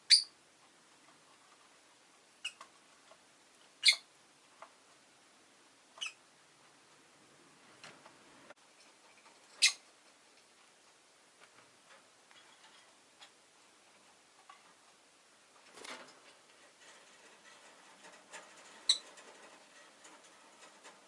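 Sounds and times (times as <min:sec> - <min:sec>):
lovebird chirping: 0:00.0 - 0:00.3, 0:02.4 - 0:02.6, 0:03.8 - 0:04.1, 0:06.0 - 0:06.2, 0:09.6 - 0:09.8.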